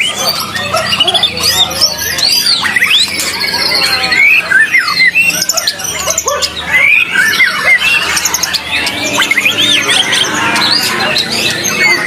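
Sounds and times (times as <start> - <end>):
bird singing varied whistles: 0.0 - 6.0, 6.7 - 10.1.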